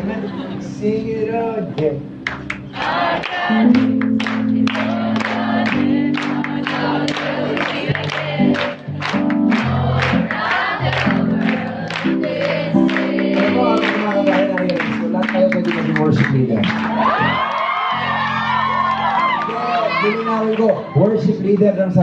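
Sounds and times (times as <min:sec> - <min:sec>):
bass and keyboard chords: 0:00.0 - 0:22.0
congregation singing: 0:02.7 - 0:17.5.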